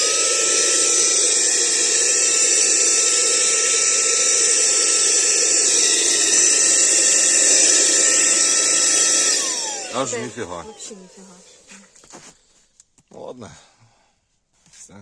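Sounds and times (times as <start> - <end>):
vacuum cleaner motor whine: 0.0 - 11.8.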